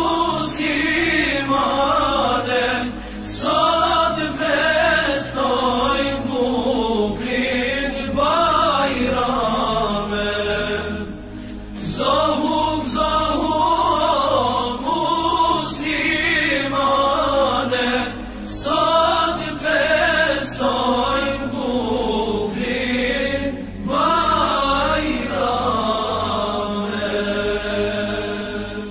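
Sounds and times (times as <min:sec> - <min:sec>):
person chanting melismatic devotional song: 0:00.0 - 0:28.9
steady low drone: 0:00.0 - 0:28.9
singer breathing: 0:02.9 - 0:03.3, 0:11.2 - 0:11.8.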